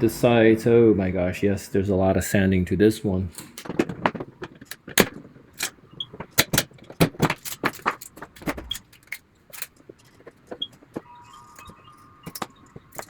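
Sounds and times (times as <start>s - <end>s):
plastic supports snapping: 3.3s - 13.0s.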